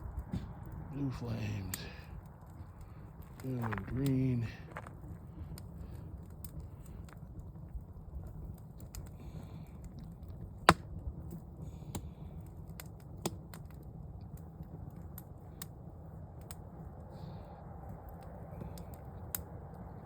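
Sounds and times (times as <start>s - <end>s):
campfire crackling and popping: 0.0s - 20.0s
low rumble of flames: 0.0s - 20.0s.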